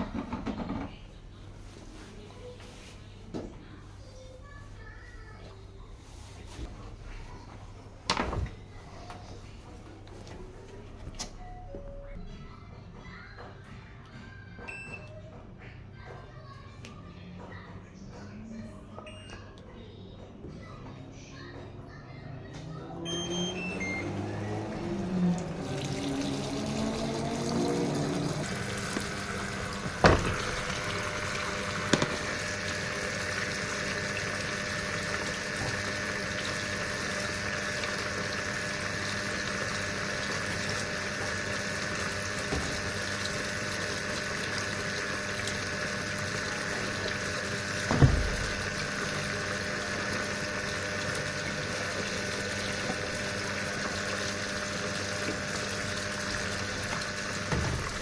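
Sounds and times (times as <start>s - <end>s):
water running into washing machine: 23.1s - 58.0s.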